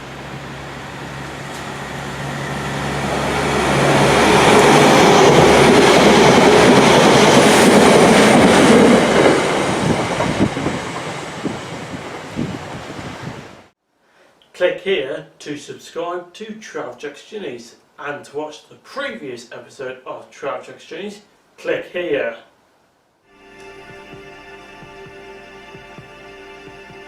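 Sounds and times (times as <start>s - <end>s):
train rumbling by: 0.0s - 13.6s.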